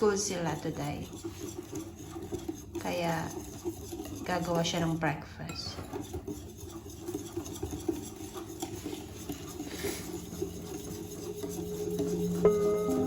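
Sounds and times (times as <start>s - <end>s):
batter stirred in mixing bowl: 0.0s - 13.0s
utensil tapping bowl: 0.0s - 13.0s
background music: 10.5s - 13.0s.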